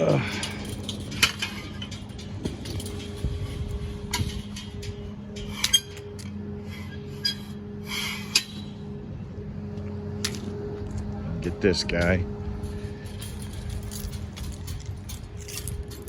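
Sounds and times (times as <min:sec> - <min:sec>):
metallic clinks and rattles: 0:00.0 - 0:06.4, 0:11.9 - 0:16.0
low engine hum: 0:00.0 - 0:16.0.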